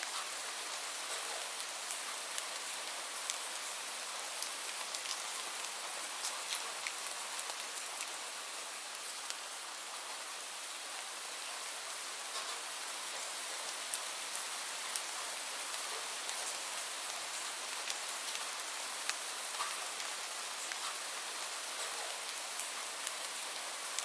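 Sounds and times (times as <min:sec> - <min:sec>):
raindrops ticking on surface: 0:00.0 - 0:10.2, 0:12.3 - 0:24.0
steady rain hiss: 0:00.0 - 0:24.0.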